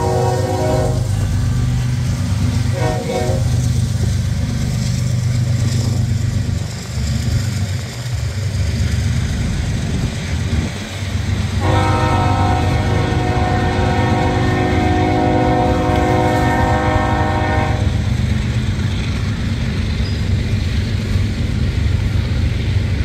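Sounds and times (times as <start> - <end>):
locomotive horn blast: 0.0 - 1.8, 2.6 - 3.7, 11.6 - 18.1
freight train rumble: 0.0 - 23.0.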